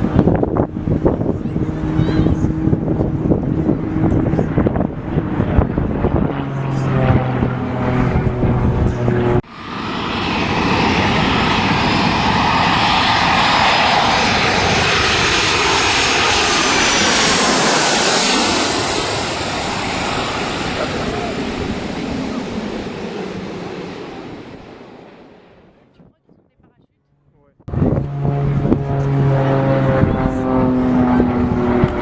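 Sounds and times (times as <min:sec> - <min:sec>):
airplane engine flying past: 0:00.0 - 0:32.0.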